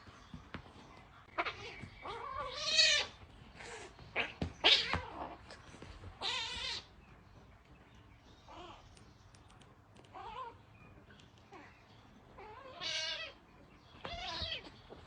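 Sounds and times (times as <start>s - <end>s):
cat yowling aggressively: 1.4s - 3.2s, 6.2s - 6.9s, 12.4s - 13.4s.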